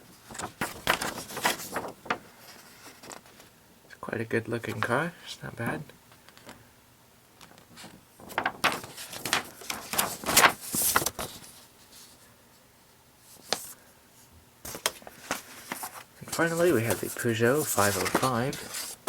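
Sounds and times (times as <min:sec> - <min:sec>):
paper rustling and sliding: 0:00.1 - 0:03.5, 0:07.7 - 0:12.2, 0:13.2 - 0:13.8, 0:14.6 - 0:19.0.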